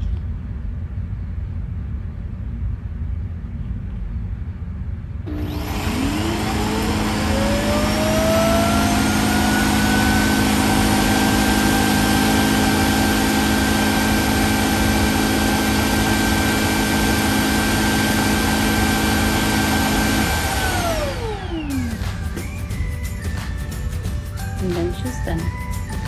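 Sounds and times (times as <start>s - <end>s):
suction motor whine: 5.3s - 26.0s.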